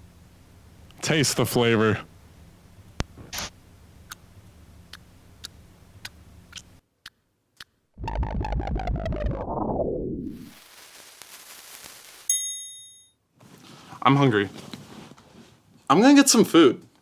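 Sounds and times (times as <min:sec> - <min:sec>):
buzzing synthesizer tone falling: 0:08.0 - 0:10.5.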